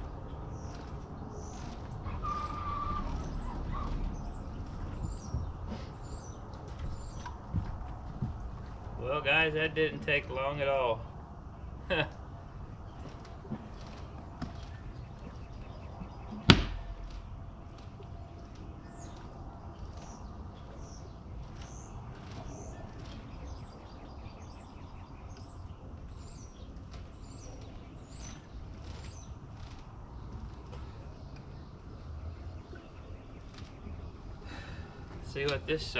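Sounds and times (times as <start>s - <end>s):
low steady rumble: 0.0s - 35.9s
sharp knock: 16.5s - 17.0s.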